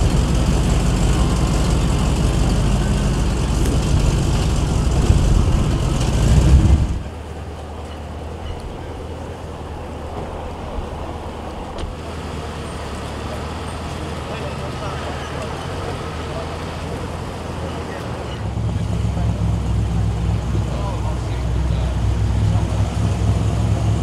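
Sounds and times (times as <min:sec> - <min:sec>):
muscle car engine running loudly: 0:00.0 - 0:24.0.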